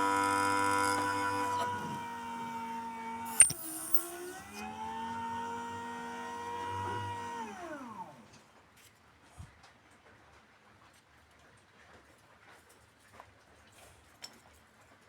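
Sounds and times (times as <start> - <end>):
small electric motor whining: 0.0 - 8.1
sharp click: 3.3 - 4.3.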